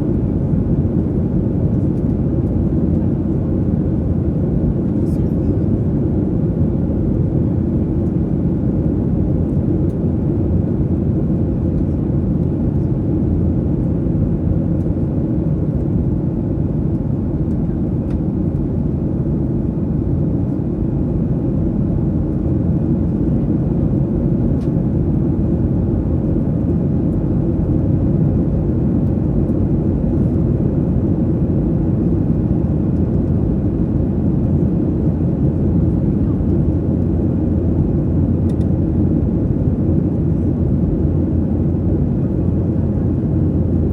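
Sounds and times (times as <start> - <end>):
airliner cabin noise: 0.0 - 43.9.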